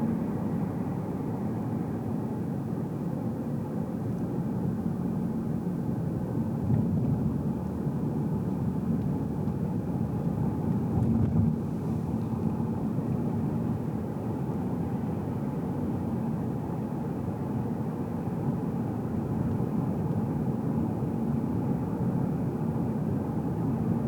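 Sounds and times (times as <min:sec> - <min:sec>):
car road and engine noise: 0:00.0 - 0:24.0.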